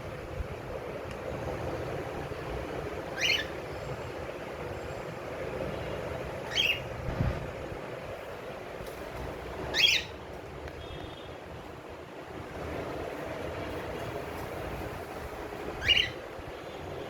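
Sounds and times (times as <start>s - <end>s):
steady background noise: 0.0s - 17.0s
cockatiel chirping: 3.2s - 3.5s, 9.7s - 10.1s, 15.8s - 16.2s.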